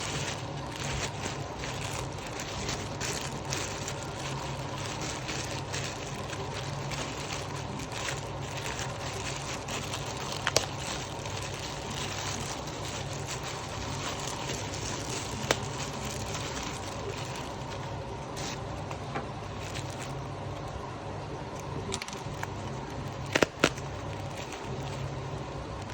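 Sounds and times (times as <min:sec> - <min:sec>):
handling crackling and rustling: 0:00.0 - 0:25.9
steady low hum: 0:00.0 - 0:25.9.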